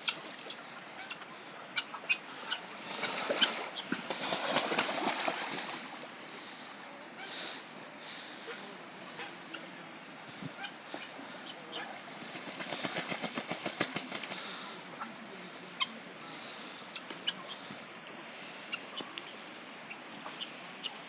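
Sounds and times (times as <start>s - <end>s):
poultry flapping wings: 2.3s - 6.1s, 12.2s - 14.7s
faint clicks: 19.0s - 19.6s.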